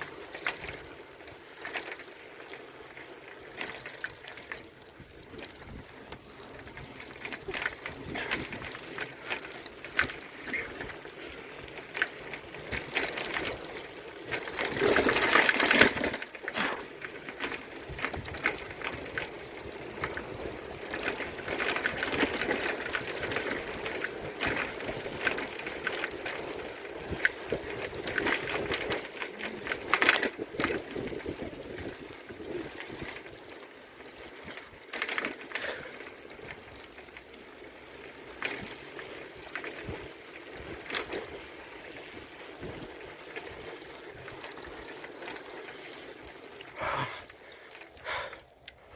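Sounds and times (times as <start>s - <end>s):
bicycle rattling and clicking: 0.0s - 48.9s.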